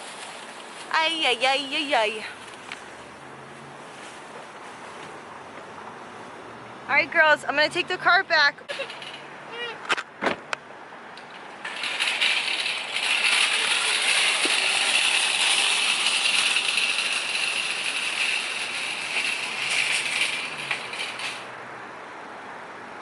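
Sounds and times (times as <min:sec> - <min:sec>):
shopping cart rattling on pavement: 0:00.0 - 0:02.4, 0:08.4 - 0:09.7, 0:11.3 - 0:21.5.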